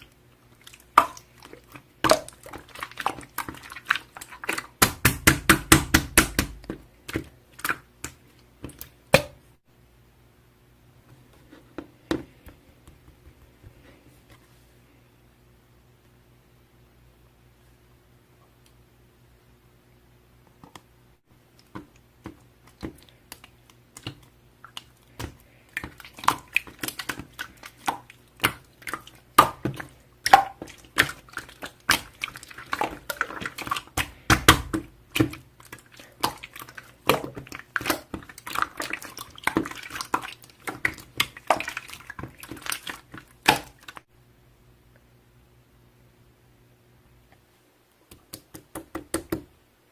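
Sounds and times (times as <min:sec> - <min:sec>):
slime squelching and clicking: 0:21.5 - 0:44.1.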